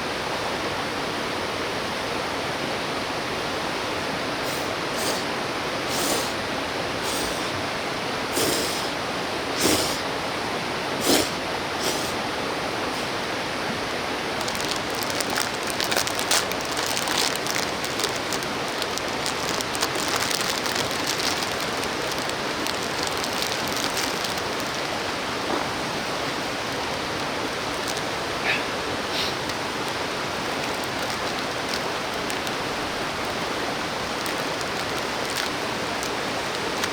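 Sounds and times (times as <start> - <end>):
stream running: 0.4 - 36.9
small crackles: 13.8 - 36.9.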